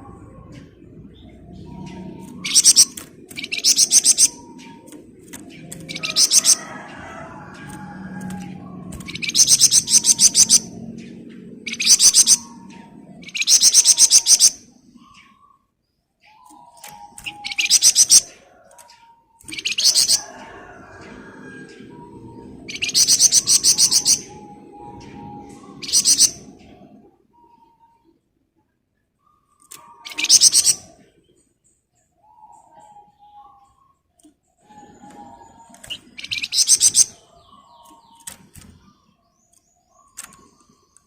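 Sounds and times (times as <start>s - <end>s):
songbird rattling trills: 1.5s - 10.8s, 11.6s - 12.5s, 13.2s - 14.6s, 16.5s - 18.9s, 22.4s - 24.4s, 29.6s - 30.9s, 35.1s - 38.9s.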